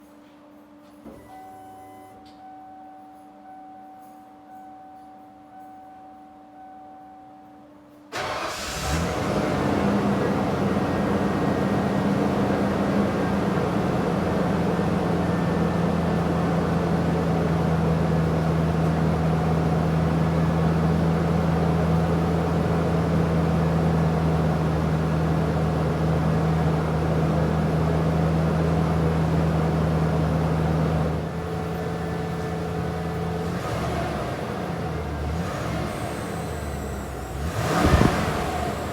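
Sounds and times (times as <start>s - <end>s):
truck engine starting and idling: 8.1s - 38.9s.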